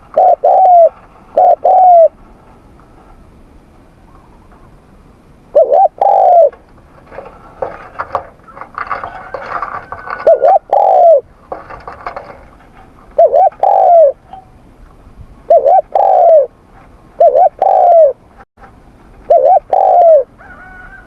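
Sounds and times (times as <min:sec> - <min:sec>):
dove cooing: 0:00.0 - 0:02.2, 0:05.5 - 0:14.6, 0:15.5 - 0:16.6, 0:17.2 - 0:18.2, 0:19.3 - 0:21.0.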